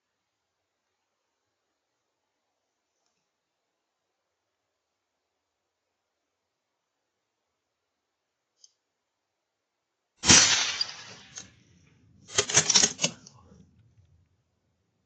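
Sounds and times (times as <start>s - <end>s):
sharp crack: 10.2s - 13.7s
crackling clicks: 10.2s - 14.3s.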